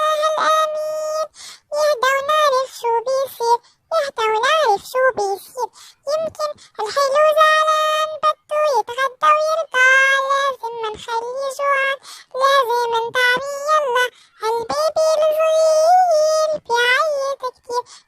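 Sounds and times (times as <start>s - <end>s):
child singing: 0.0s - 18.0s.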